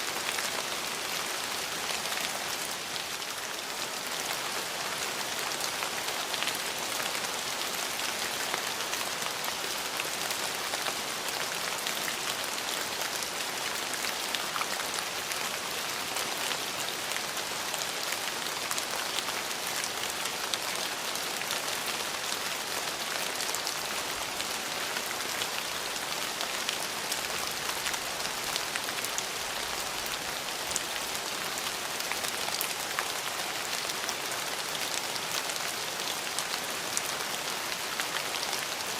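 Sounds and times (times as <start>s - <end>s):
steady rain hiss: 0.0s - 38.9s
raindrop ticks: 10.0s - 20.7s, 26.3s - 36.6s.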